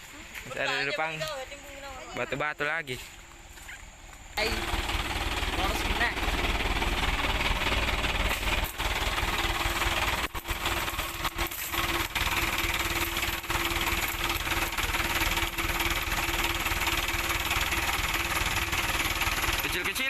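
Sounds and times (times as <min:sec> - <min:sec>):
diesel truck engine clattering: 0:04.4 - 0:20.0.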